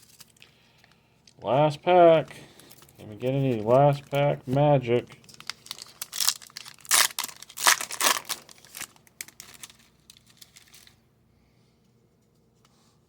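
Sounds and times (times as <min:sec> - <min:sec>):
plastic wrapper tearing and crinkling: 0:00.0 - 0:01.4, 0:02.6 - 0:11.0.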